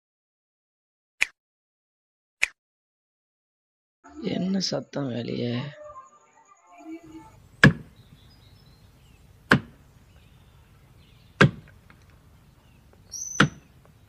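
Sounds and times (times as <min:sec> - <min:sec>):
axe chopping into a tree trunk: 0:07.6 - 0:07.9, 0:09.5 - 0:09.8, 0:11.4 - 0:11.7, 0:13.3 - 0:13.6.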